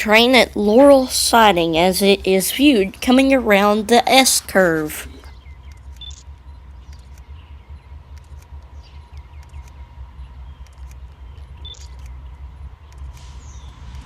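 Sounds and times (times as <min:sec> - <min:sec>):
distant freight train rumble: 0:00.0 - 0:14.0
faint steady hum: 0:00.0 - 0:14.0
faint chirps: 0:05.2 - 0:13.8.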